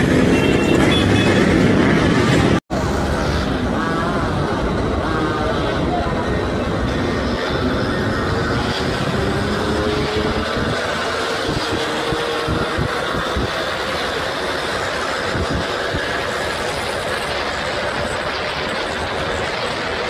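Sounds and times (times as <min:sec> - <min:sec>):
two-stroke motorcycles revving: 0:00.0 - 0:20.0.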